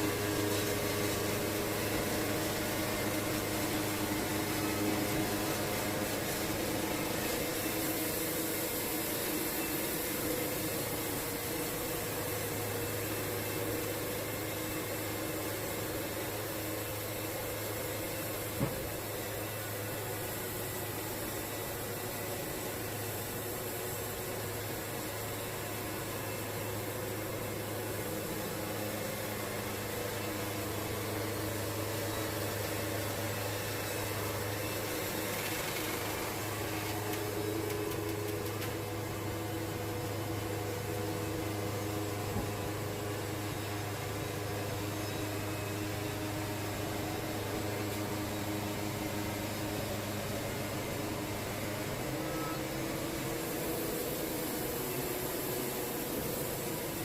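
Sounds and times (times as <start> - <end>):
band sawmill cutting log: 0.0 - 57.0.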